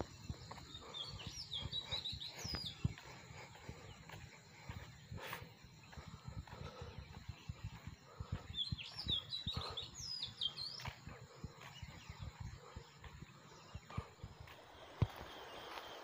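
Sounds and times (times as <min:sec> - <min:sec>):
footsteps on paved road: 0:00.0 - 0:16.0
small bird chirping: 0:00.0 - 0:16.0.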